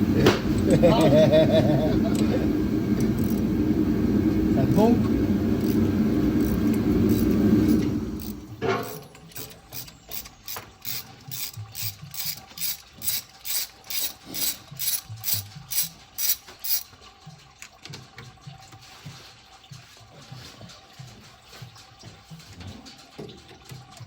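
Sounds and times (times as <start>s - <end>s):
ratchet wrench clicking: 3.1s - 3.4s, 6.4s - 16.9s.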